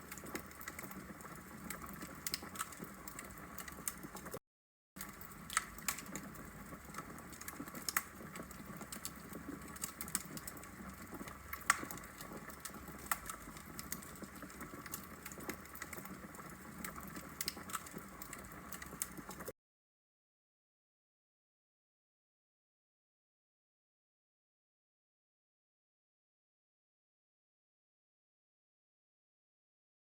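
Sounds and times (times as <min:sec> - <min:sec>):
logs crackling and popping: 0:00.0 - 0:04.4, 0:05.0 - 0:19.5.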